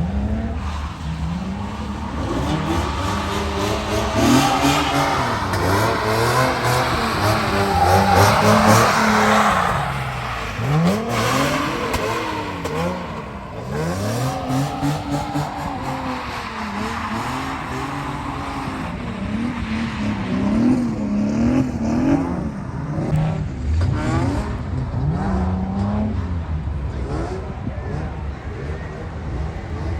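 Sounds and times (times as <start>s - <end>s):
car engine revving hard: 0.0s - 29.9s.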